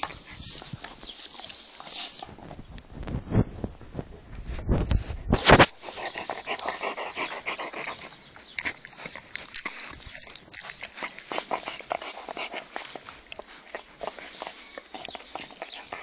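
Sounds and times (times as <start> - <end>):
rustling: 0.0 - 16.0
dog panting: 5.6 - 16.0.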